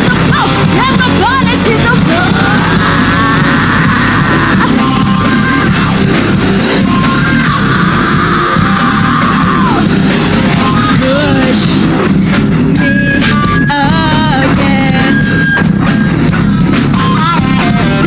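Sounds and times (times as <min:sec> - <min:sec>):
electric guitar bending notes: 0:00.0 - 0:18.0
heavy rock music: 0:00.0 - 0:18.0.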